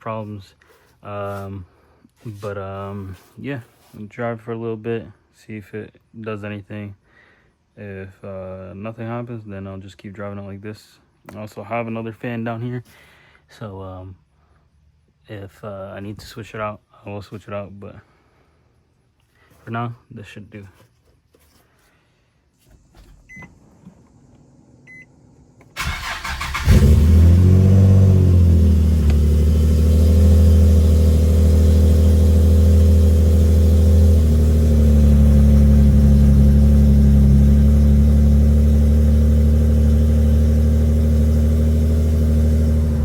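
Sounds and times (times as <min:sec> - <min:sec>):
car engine cranking and idling: 0:25.6 - 0:43.0.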